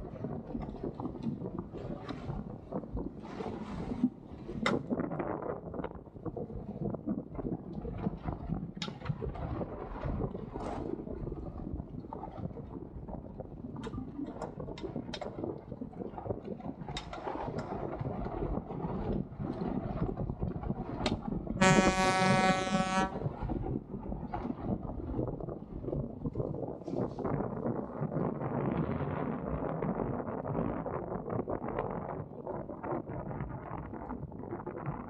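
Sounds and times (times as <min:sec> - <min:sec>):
water noise: 0:00.0 - 0:27.6
wind on the microphone: 0:00.0 - 0:35.0
loud held pitched tone: 0:21.6 - 0:23.2.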